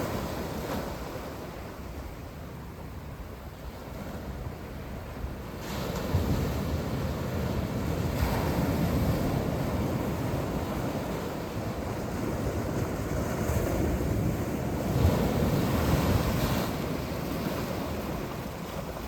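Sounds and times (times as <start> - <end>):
sea waves breaking on shore: 0.0 - 19.0
wind rumbling on microphone: 0.0 - 19.0.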